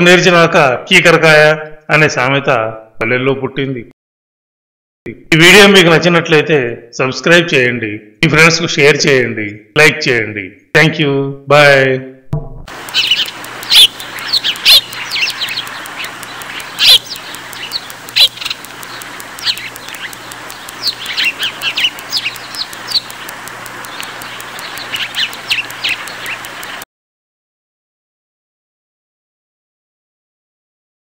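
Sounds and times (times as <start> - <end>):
birds chirping: 12.7 - 26.8
faint low hum: 12.7 - 26.8
steady hiss: 12.7 - 26.8.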